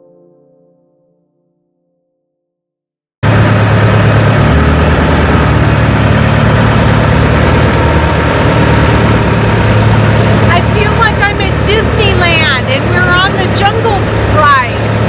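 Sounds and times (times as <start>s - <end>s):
boat engine running: 3.2s - 15.0s.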